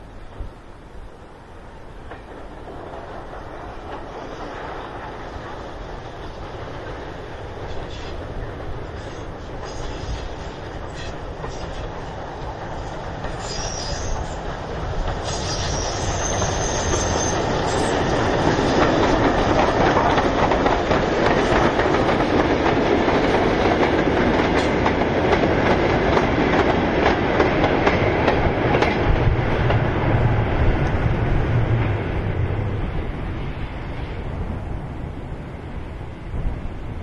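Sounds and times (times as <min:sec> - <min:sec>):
steam train running and rail clatter: 0:00.0 - 0:37.0
wheel squeal: 0:13.3 - 0:14.4, 0:15.2 - 0:18.1.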